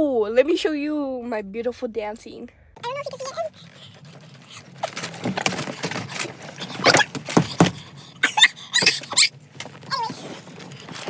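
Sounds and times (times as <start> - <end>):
rustling and scraping of movement: 2.8 - 11.0.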